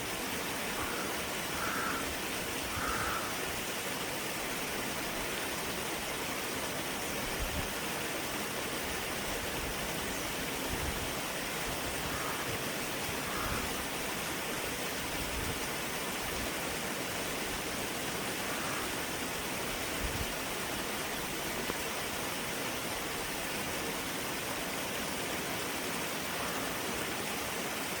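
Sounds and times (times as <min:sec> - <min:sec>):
creek water over stones: 0:00.0 - 0:28.0.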